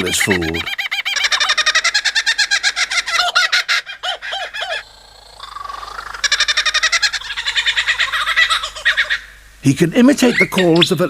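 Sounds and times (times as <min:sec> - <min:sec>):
lyrebird laughing chatter: 0:00.0 - 0:09.4, 0:10.1 - 0:11.0.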